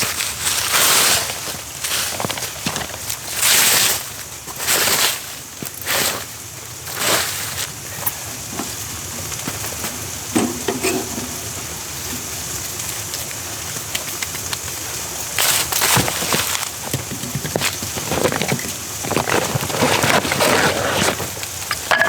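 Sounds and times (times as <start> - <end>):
rustling bursts: 15.4 - 21.9
utensil stirring and scraping: 15.8 - 22.0.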